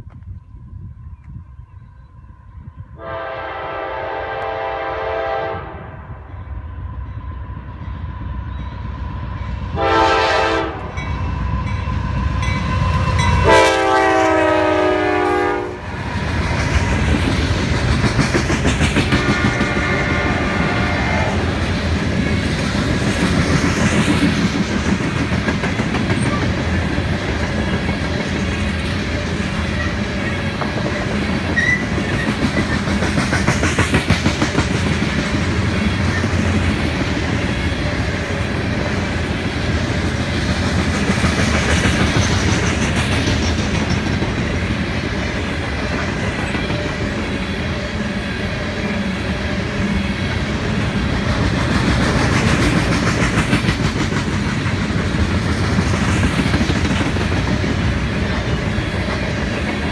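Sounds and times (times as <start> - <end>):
freight train rumbling past: 0.0 - 59.9
locomotive air horn blasts: 3.0 - 6.0, 9.7 - 11.0, 12.9 - 15.8, 19.2 - 21.3.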